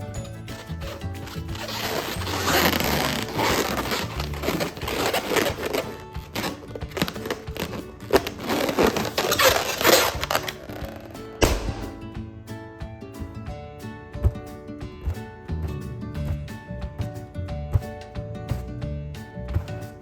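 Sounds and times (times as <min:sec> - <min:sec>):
balloons rubbing and crinkling: 0:00.0 - 0:12.2
background music: 0:00.0 - 0:20.0
sharp balloon cracks: 0:00.5 - 0:12.3.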